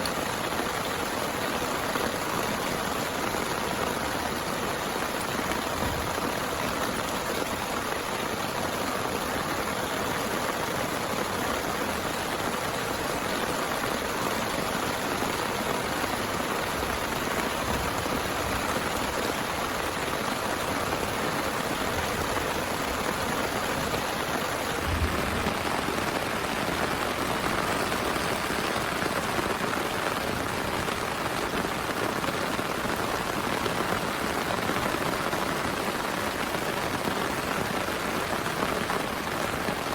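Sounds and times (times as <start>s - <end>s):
heavy rain falling: 0.0s - 39.9s
soft low thump: 24.8s - 25.8s.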